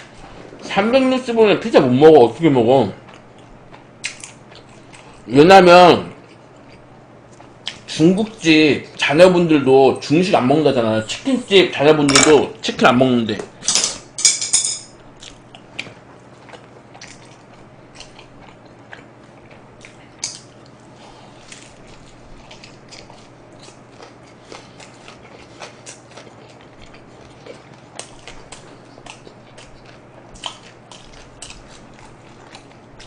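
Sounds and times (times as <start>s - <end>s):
person chewing pizza: 0.0s - 5.3s, 5.9s - 9.0s, 15.0s - 33.0s
low steady hum: 0.0s - 33.0s.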